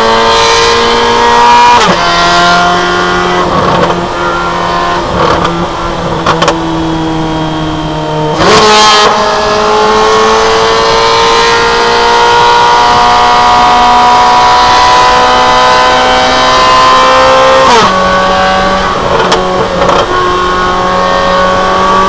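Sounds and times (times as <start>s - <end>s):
car engine revving: 0.0s - 22.0s
exhaust cracks: 3.0s - 7.2s.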